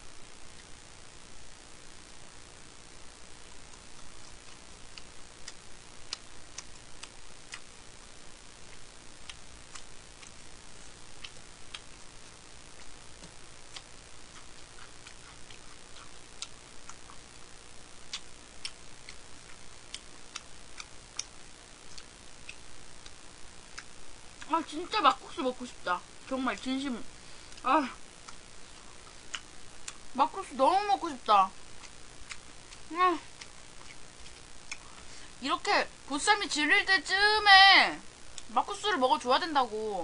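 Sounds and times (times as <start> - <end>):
faint steady hiss: 0.0 - 40.0
person chewing food: 3.6 - 7.8, 8.6 - 17.4, 18.0 - 24.5, 27.4 - 30.1, 31.7 - 35.3.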